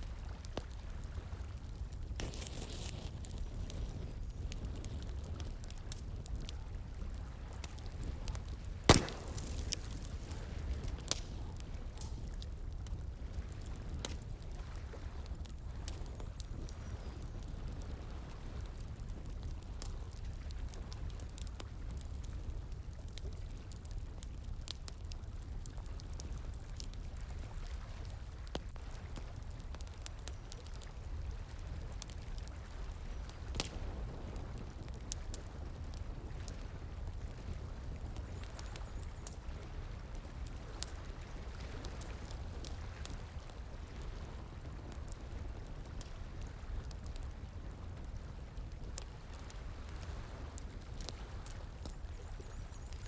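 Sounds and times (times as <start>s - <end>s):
wood fire crackling: 0.0s - 53.0s
loud pop: 8.9s - 10.4s.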